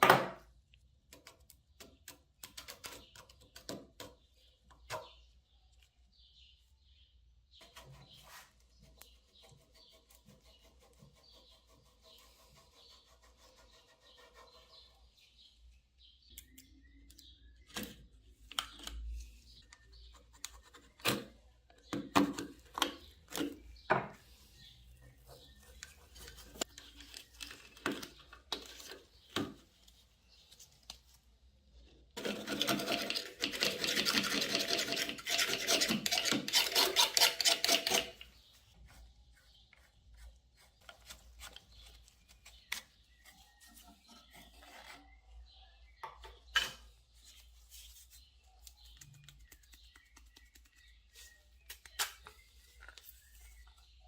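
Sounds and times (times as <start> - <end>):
fast scratching rasp: 32.2 - 38.2.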